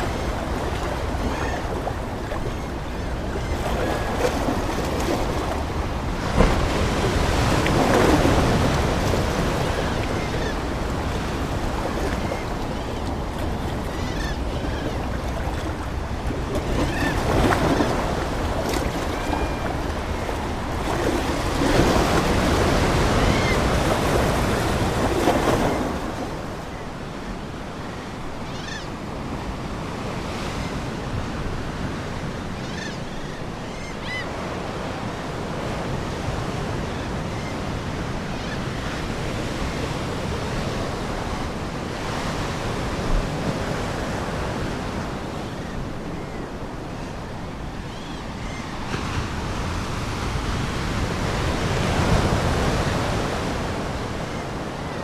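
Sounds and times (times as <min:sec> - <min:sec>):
faint seagull calls: 0:00.0 - 0:04.6, 0:09.5 - 0:20.3, 0:26.7 - 0:29.0
ocean waves breaking on shore: 0:00.0 - 0:55.0.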